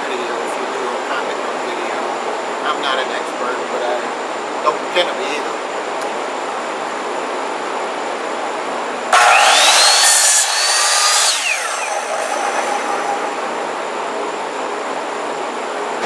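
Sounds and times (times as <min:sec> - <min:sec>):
steady hum: 0:00.0 - 0:16.0
power tool motor whining: 0:09.2 - 0:13.8.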